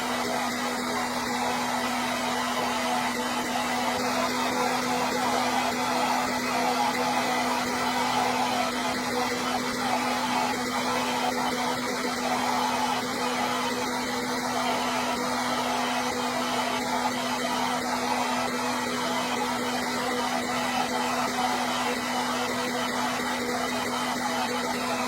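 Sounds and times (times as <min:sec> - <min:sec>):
hair dryer running: 0:00.0 - 0:25.0.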